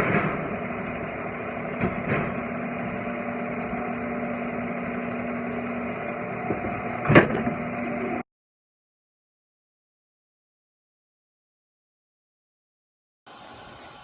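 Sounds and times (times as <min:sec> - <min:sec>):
steady machine hum: 0:00.0 - 0:08.2, 0:13.3 - 0:14.0.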